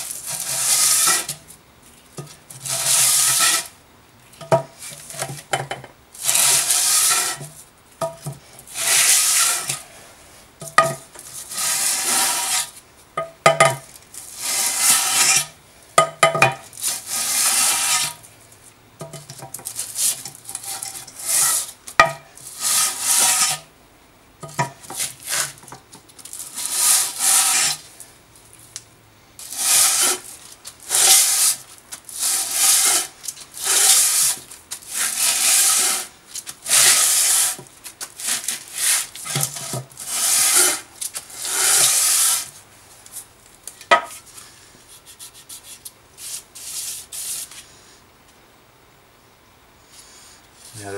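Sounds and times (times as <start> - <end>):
metal scraping on sandpaper: 0.0 - 1.5, 2.2 - 3.8, 6.2 - 7.6, 8.7 - 10.0, 11.2 - 12.8, 14.2 - 15.6, 16.7 - 18.3, 19.7 - 21.8, 22.4 - 23.7, 24.4 - 25.7, 26.3 - 28.0, 29.4 - 43.2, 44.9 - 47.6.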